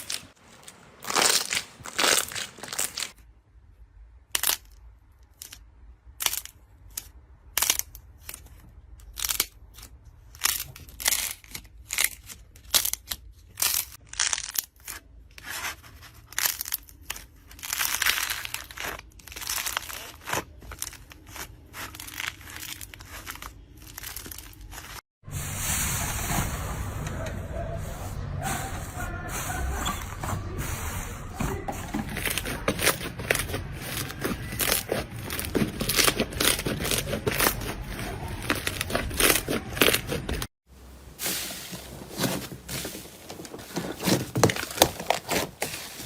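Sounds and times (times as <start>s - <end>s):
slime crackling and popping: 1.0s - 3.2s, 16.2s - 25.0s.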